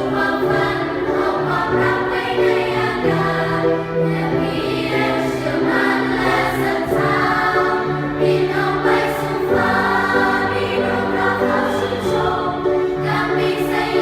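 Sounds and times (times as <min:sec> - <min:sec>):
choir singing in harmony: 0:00.0 - 0:14.0.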